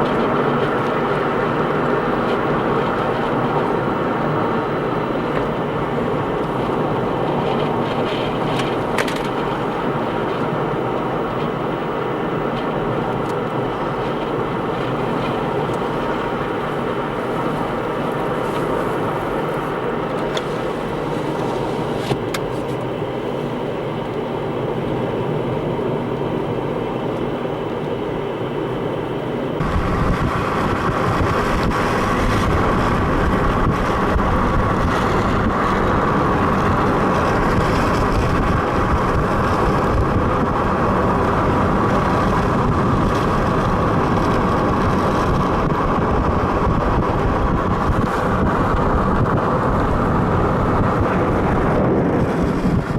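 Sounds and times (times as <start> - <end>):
car driving road noise: 0.0 - 52.9
loud rushing noise: 29.6 - 52.9.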